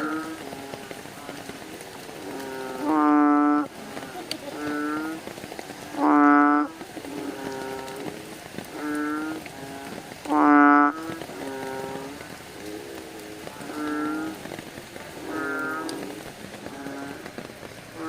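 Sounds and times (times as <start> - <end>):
frog chorus: 0.0 - 18.0
quieter frog calls: 0.0 - 18.0
bullfrog calls: 5.9 - 8.1, 8.7 - 14.4, 15.2 - 17.3.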